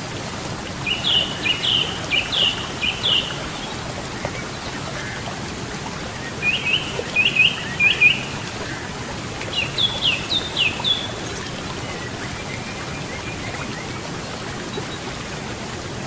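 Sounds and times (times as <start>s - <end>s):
river rushing: 0.0s - 16.0s
songbird chirping: 0.9s - 3.6s.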